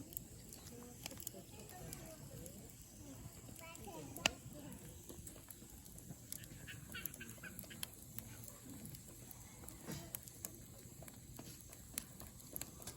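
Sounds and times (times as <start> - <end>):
campfire crackling and popping: 0.0 - 12.9.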